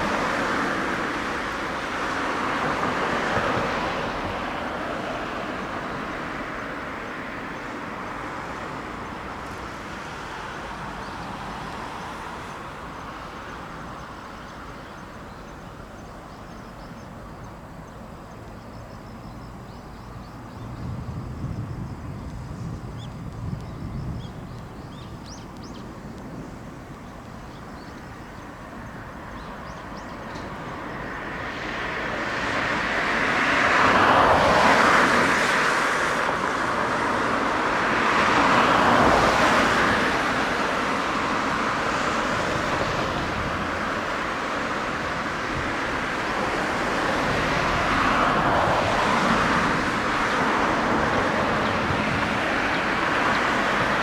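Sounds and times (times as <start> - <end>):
jet aircraft engine: 23.4 - 54.0.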